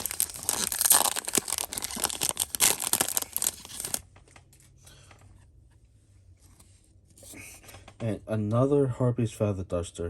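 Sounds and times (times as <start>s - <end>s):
cards rustling: 0.0s - 4.0s
foil wrapper crinkling and tearing: 0.0s - 4.0s.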